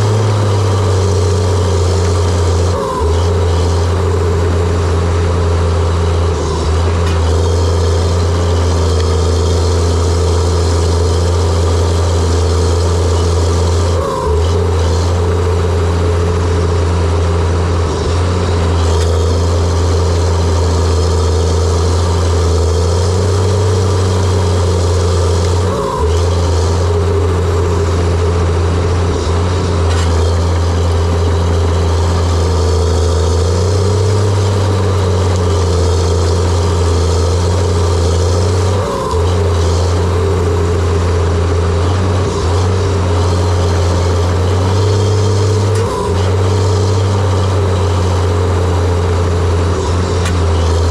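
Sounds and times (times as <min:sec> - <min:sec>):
bulldozer diesel engine running: 0:00.0 - 0:50.9.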